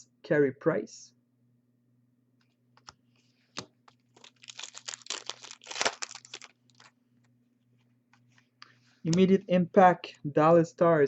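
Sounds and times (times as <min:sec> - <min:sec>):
foil wrapper crinkling: 0:04.1 - 0:07.0.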